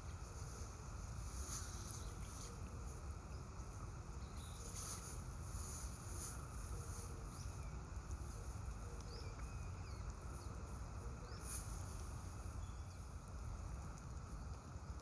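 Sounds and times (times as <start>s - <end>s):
faint bird chirps: 1.4s - 13.2s.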